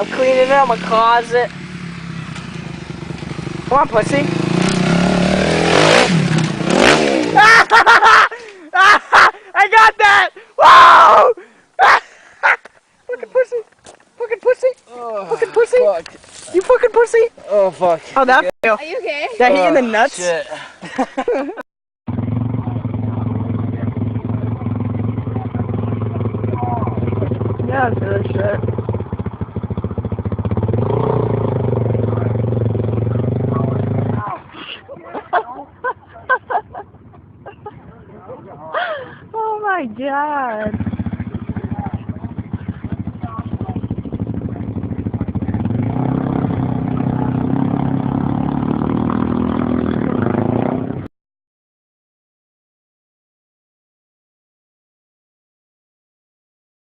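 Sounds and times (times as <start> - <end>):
off-road motorbike engine running: 0.0 - 7.6, 22.1 - 34.5, 35.2 - 51.1.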